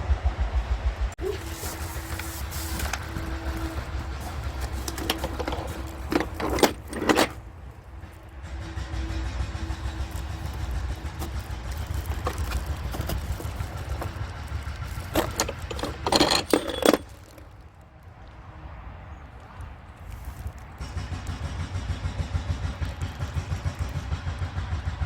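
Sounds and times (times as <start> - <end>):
steady low rumble: 0.0 - 16.1
metal tools clinking: 1.3 - 7.4, 9.8 - 17.6.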